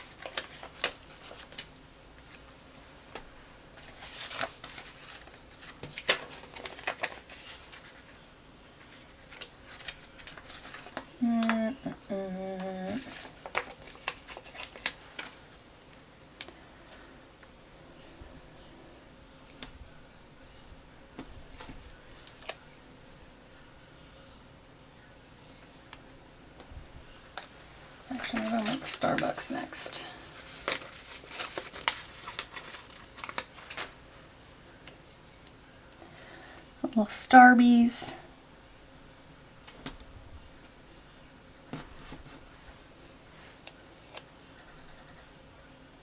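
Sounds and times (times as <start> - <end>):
paper crinkling and ticking: 0.0 - 8.2, 8.8 - 12.0, 12.6 - 17.6, 21.2 - 22.6, 27.2 - 34.1, 41.7 - 45.2.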